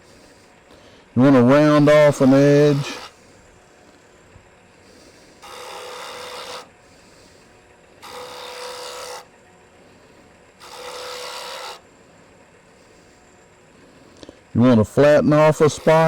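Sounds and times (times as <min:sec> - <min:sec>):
disc sander rasping on workpiece: 0:00.0 - 0:00.6, 0:01.2 - 0:16.0.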